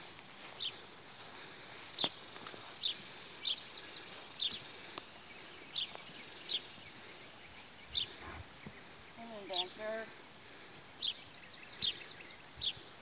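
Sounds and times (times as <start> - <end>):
bird chirping: 1.9 - 10.0, 10.7 - 12.9.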